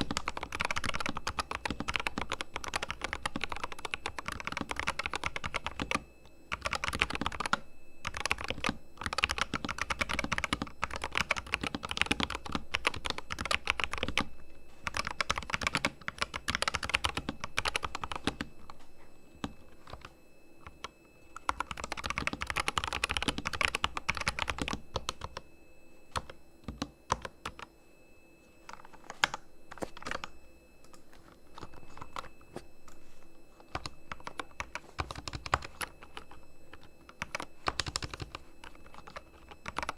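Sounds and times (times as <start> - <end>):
mechanical keyboard typing: 0.0 - 18.4, 19.4 - 20.8, 21.4 - 25.4, 26.2 - 27.7, 33.7 - 39.9.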